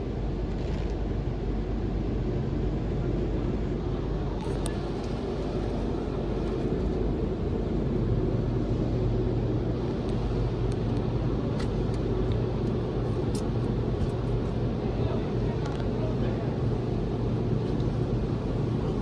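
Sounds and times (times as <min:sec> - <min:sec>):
car wash equipment rumbling: 0:04.5 - 0:19.0.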